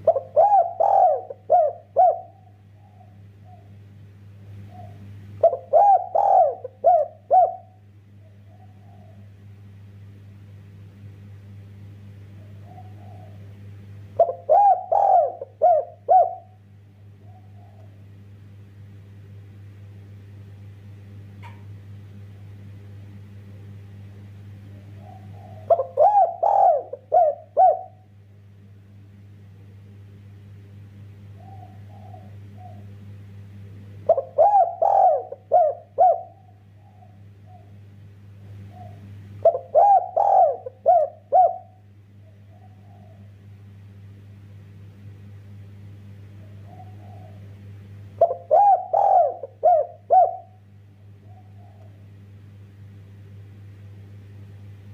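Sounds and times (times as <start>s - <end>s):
dove cooing: 0.0s - 3.8s, 4.6s - 9.5s, 12.3s - 18.2s, 24.7s - 28.1s, 31.3s - 33.0s, 34.0s - 37.8s, 38.5s - 43.5s, 46.3s - 52.2s
steady low hum: 0.0s - 54.9s.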